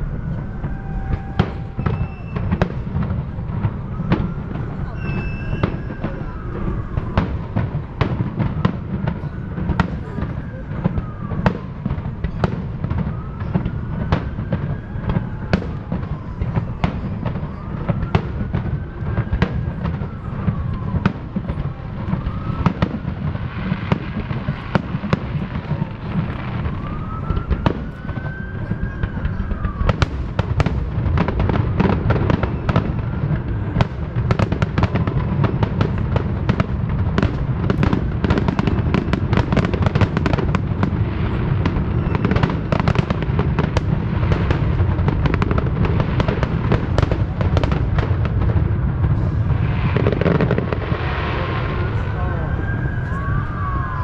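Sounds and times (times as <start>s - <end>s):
fireworks whistles: 0.0s - 48.1s, 49.0s - 54.0s
fireworks bangs: 0.0s - 54.0s
low rumble: 48.0s - 50.0s.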